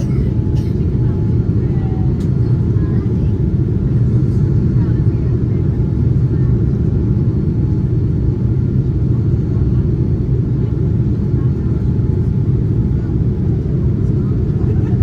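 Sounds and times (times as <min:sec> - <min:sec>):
airliner engines and airflow in cabin: 0:00.0 - 0:15.0.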